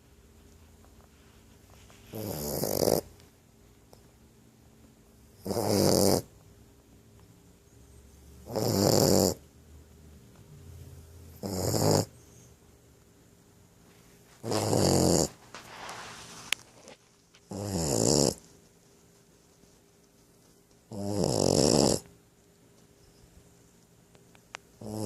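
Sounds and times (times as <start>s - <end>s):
puppy snoring heavily: 2.1s - 3.1s, 5.4s - 6.3s, 8.4s - 9.5s, 11.3s - 12.3s, 14.4s - 15.8s, 17.4s - 18.4s, 20.9s - 22.1s, 24.8s - 25.0s.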